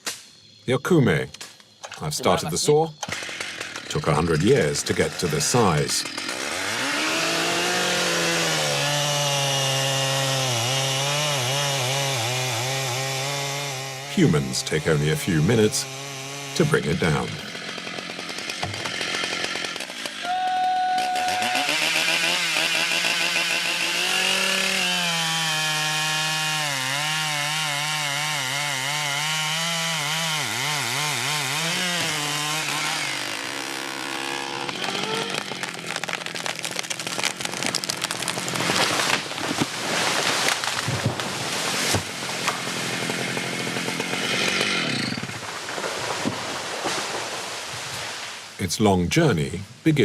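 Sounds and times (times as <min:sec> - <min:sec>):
chainsaw cutting tree trunk: 0:03.0 - 0:20.4, 0:21.0 - 0:48.5
tree cracking and crashing down: 0:31.8 - 0:48.6.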